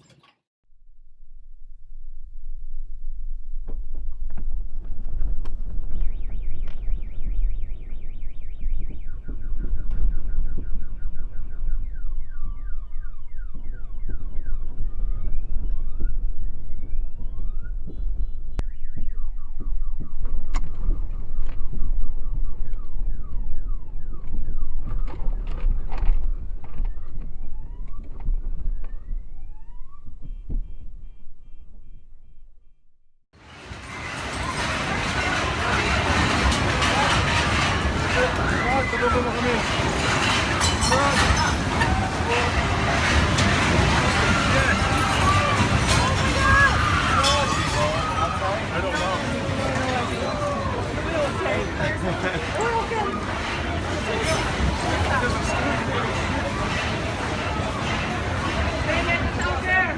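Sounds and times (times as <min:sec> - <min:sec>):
deep rumble: 0:00.7 - 0:59.9
car alarms beeping and whooping: 0:07.2 - 0:18.0
rattling and clattering: 0:33.4 - 0:59.8.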